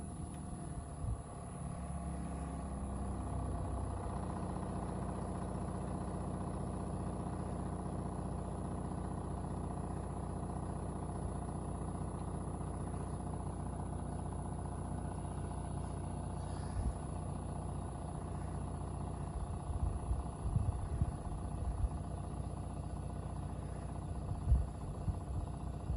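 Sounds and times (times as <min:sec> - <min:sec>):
heat pump humming: 0:15.0 - 0:22.0.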